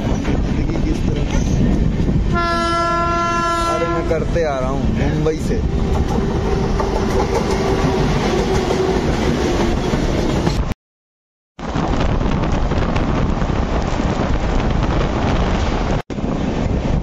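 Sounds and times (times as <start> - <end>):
train wheels rushing on rail: 0.0 - 10.7, 11.6 - 17.0.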